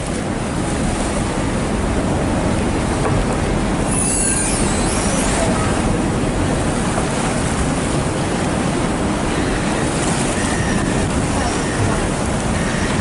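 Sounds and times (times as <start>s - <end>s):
wind and water rushing: 0.0s - 13.0s
faint high squeal: 3.9s - 5.8s.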